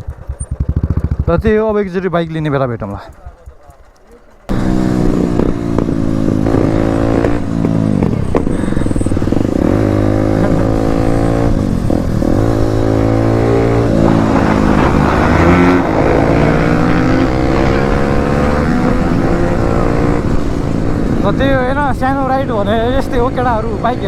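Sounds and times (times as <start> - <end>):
motorcycle engine revving: 0.0 - 24.0
rushing noise: 4.5 - 21.4.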